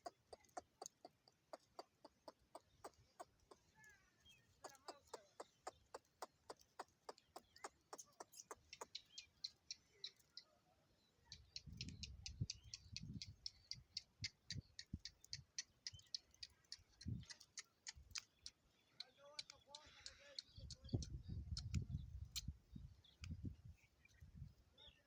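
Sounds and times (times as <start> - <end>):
rapid sharp clicks: 0.0 - 3.7, 4.6 - 9.2
faint rapid clicking: 0.0 - 10.5, 11.4 - 22.5
high bird chirps: 0.0 - 10.5, 11.2 - 25.0.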